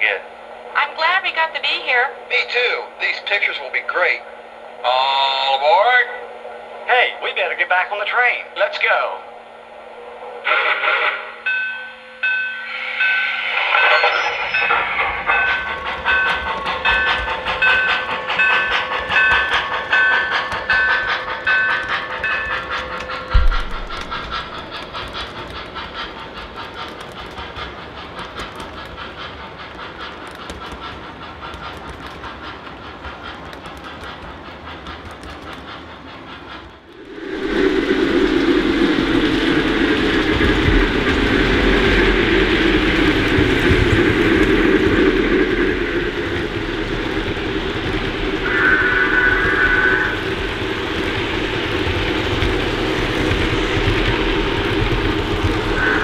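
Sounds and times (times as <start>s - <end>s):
steam locomotive sound effects: 0.0s - 56.0s
model train wheels clicking: 14.9s - 37.1s, 39.2s - 56.0s.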